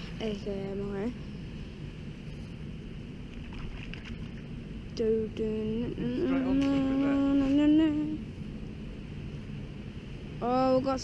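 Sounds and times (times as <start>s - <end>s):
person humming: 5.6s - 8.2s.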